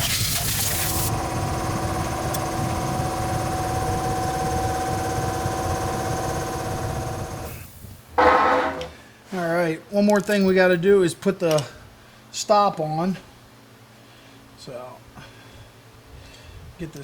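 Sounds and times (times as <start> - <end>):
electric motor whining: 0.0 - 7.6.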